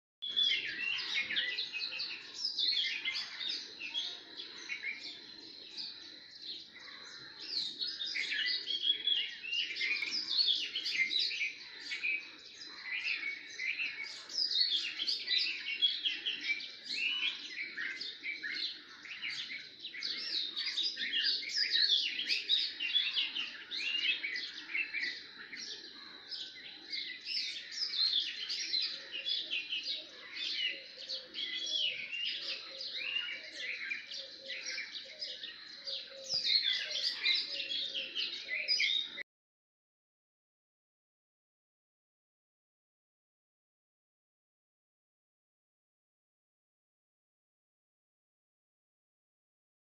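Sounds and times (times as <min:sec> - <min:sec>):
small birds chirping: 0:00.2 - 0:39.2.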